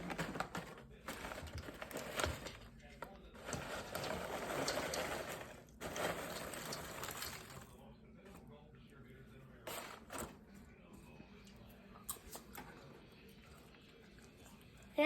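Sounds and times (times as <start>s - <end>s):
popcorn bag rustling: 0.0s - 8.4s, 9.6s - 10.6s.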